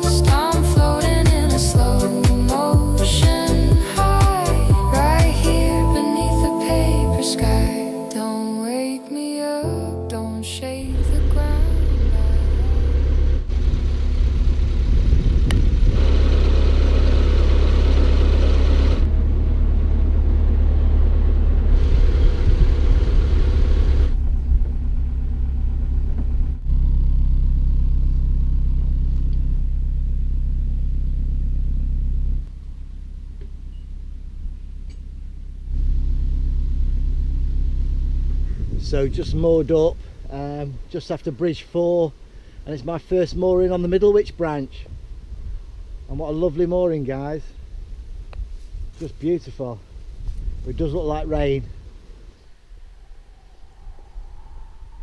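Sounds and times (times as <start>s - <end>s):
diesel engine thrumming: 0.0s - 7.7s, 9.6s - 40.9s.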